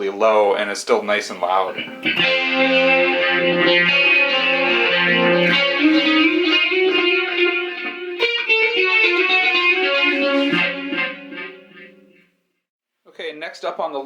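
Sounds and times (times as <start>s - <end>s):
electric guitar chords: 1.4s - 12.3s.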